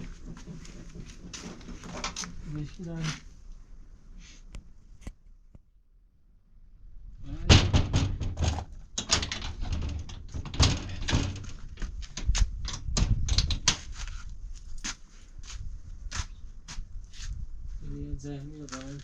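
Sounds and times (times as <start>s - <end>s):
knocks bangs and scuffing: 0.0s - 3.4s, 7.4s - 17.4s.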